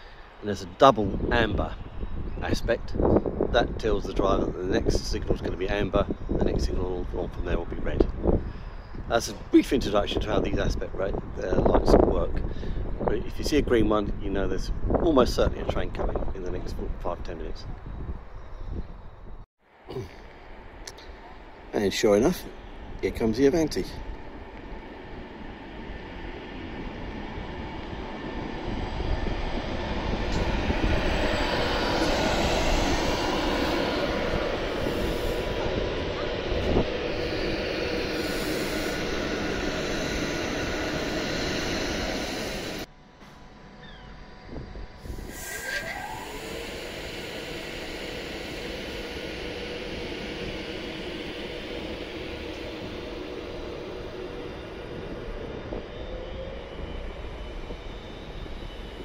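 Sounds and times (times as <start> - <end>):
passenger train passing: 0.0 - 18.3, 19.0 - 59.0
rising whine: 0.0 - 59.0
held tone: 20.6 - 59.0.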